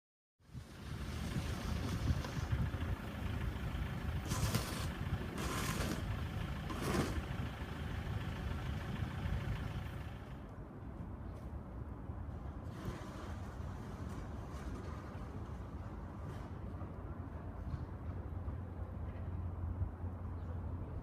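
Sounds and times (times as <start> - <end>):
pellet fireplace low rumble: 0.4 - 10.4.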